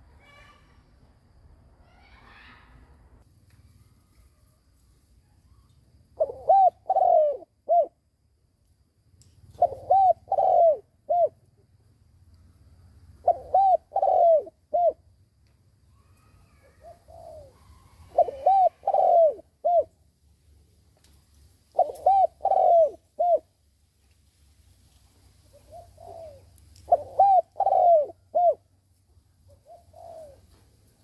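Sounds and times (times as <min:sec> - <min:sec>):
dove cooing: 0:06.2 - 0:08.0, 0:09.6 - 0:11.4, 0:13.2 - 0:15.1, 0:16.4 - 0:19.9, 0:21.7 - 0:23.5, 0:25.5 - 0:28.7, 0:29.5 - 0:30.7.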